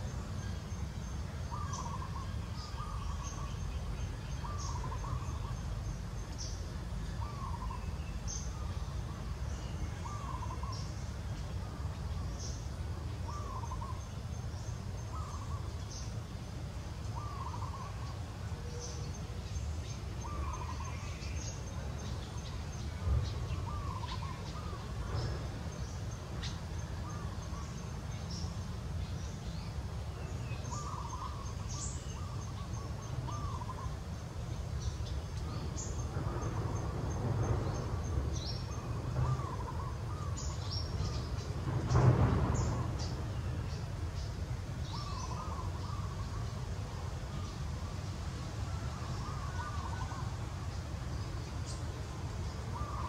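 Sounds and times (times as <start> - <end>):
bird calling: 1.5 - 5.8, 7.2 - 11.0, 13.2 - 14.2, 15.1 - 16.1, 17.1 - 22.6, 23.4 - 28.5, 30.2 - 34.1, 37.7 - 41.8, 44.8 - 46.7, 48.7 - 50.8, 52.6 - 53.0.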